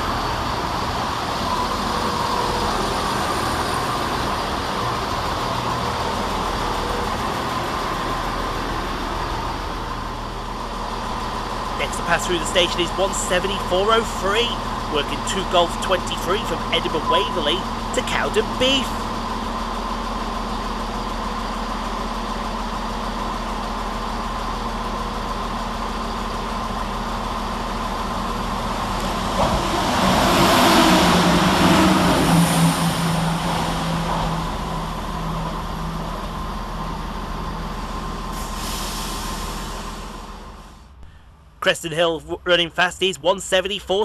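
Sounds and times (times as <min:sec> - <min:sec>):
diesel train passing: 0:00.0 - 0:44.0.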